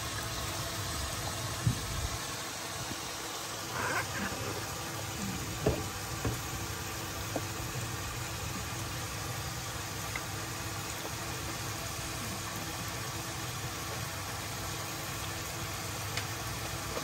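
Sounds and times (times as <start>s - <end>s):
masala sizzling in oil: 0.0s - 17.0s.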